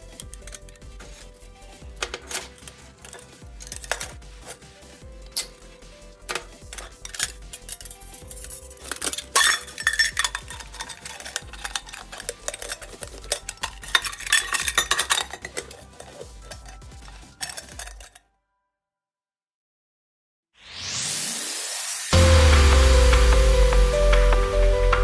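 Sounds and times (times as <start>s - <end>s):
metal utensil scraping a pot: 0.0s - 18.2s.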